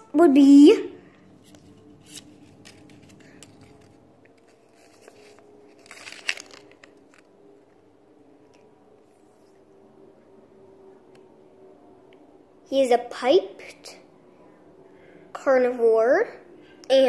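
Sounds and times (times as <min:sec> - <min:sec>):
packaging crinkle: 0:01.4 - 0:07.4
packaging rustling: 0:01.4 - 0:07.4.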